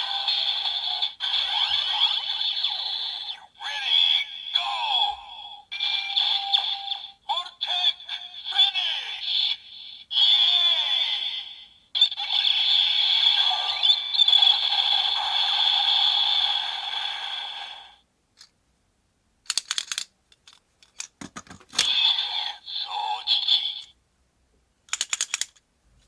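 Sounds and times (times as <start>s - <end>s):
electronic toy sound effects: 0.0s - 5.1s, 5.7s - 18.0s, 21.7s - 23.9s
plastic clicks: 19.5s - 22.0s, 24.9s - 25.6s.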